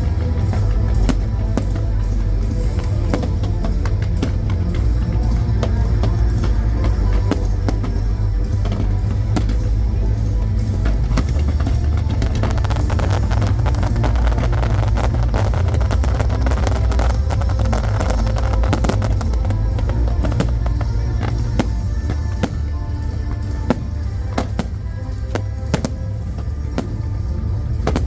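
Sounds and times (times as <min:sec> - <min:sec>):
fireworks crackling and popping: 0:01.0 - 0:05.3, 0:05.9 - 0:10.3, 0:11.2 - 0:28.0.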